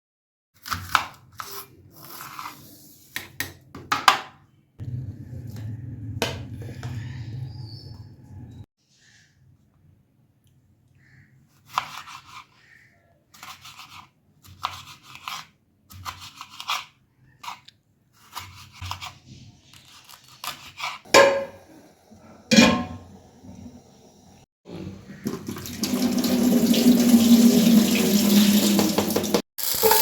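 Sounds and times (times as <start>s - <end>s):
kitchen scraping and rubbing: 1.4s - 3.4s, 18.2s - 23.8s.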